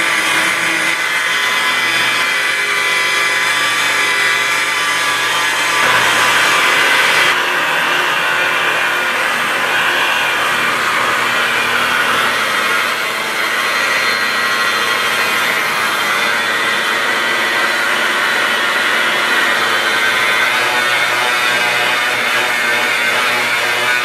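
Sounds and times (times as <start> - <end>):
electric car polisher whining: 0.0 - 24.0.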